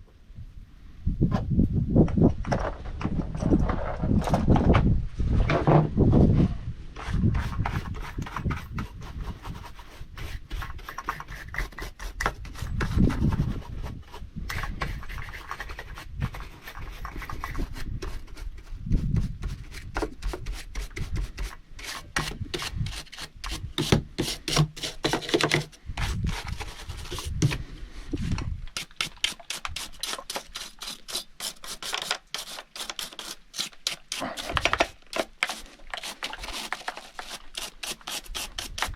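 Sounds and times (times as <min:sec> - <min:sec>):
brush scraping a chainsaw: 0:21.8 - 0:38.9.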